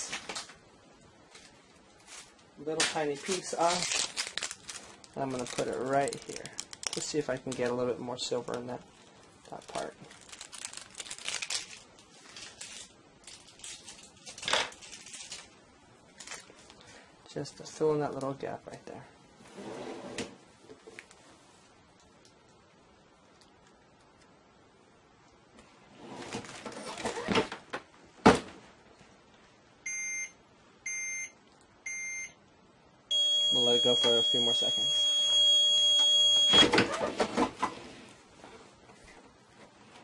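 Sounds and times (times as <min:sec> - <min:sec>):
sheets rustling: 0:01.2 - 0:07.8, 0:08.5 - 0:16.7
vinyl scraps crinkling: 0:01.2 - 0:16.8
electronic timer beeping: 0:33.1 - 0:36.7.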